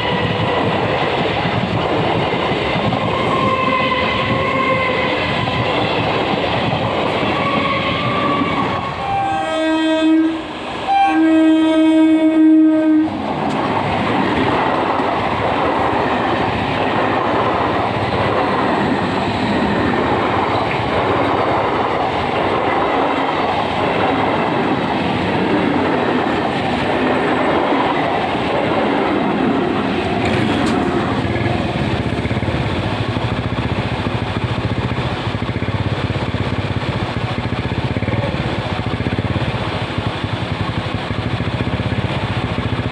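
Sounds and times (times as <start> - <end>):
train wheels clattering on rails: 0.0 - 9.0, 12.7 - 42.9
train horn: 3.1 - 5.2, 7.2 - 13.2.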